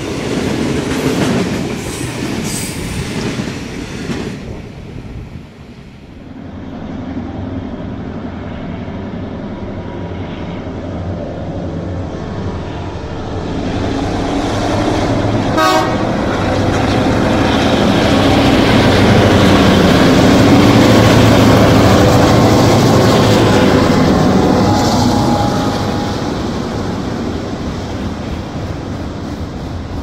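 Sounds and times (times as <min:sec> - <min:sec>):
diesel locomotive engines passing: 0:00.0 - 0:30.0
train horn blast: 0:15.5 - 0:16.3, 0:22.8 - 0:27.6.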